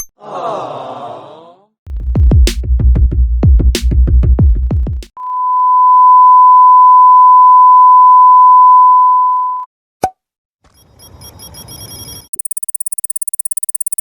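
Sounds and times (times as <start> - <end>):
electronic bass hits: 1.9 - 5.1
high-pitched censor beep: 5.2 - 9.7, 10.8 - 14.0.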